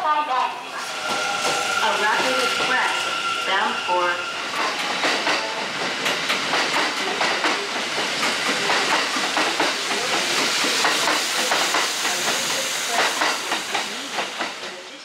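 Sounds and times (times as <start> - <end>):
electric train running past: 0.0 - 15.0
wheel and track clacks: 4.6 - 14.8.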